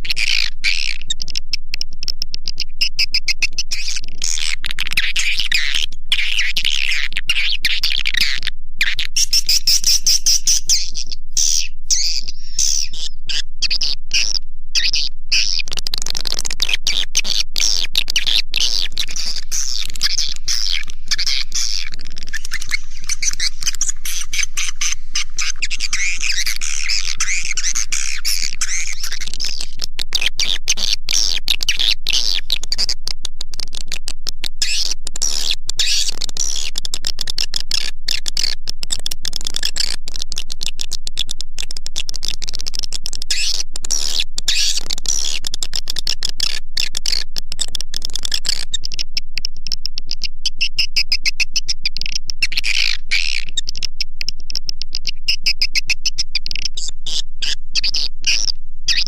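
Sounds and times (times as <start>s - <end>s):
swiftlets twittering and chirping: 2.5s - 33.0s, 50.2s - 54.0s, 55.0s - 59.0s.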